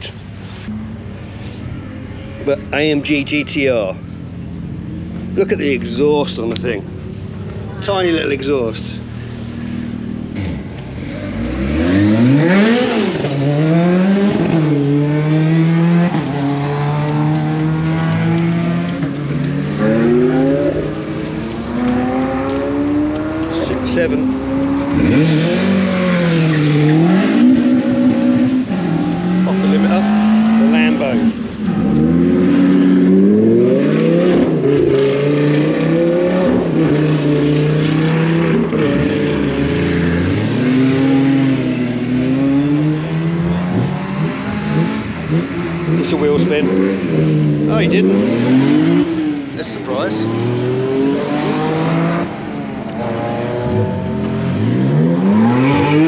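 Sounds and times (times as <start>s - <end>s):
car engine revving through gears: 10.3s - 56.0s.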